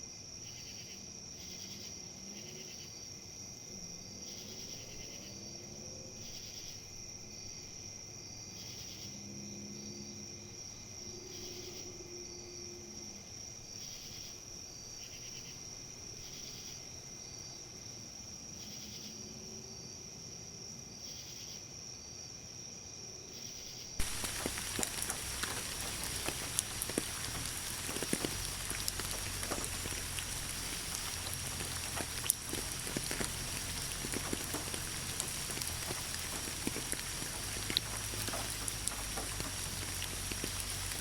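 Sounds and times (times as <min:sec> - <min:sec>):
insects chirping: 0:00.0 - 0:41.0
rain falling: 0:24.0 - 0:41.0.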